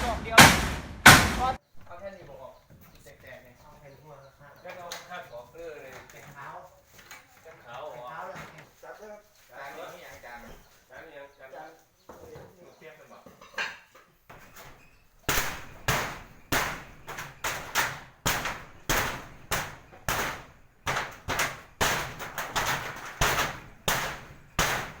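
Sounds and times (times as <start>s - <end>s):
hammer striking: 0.0s - 1.6s.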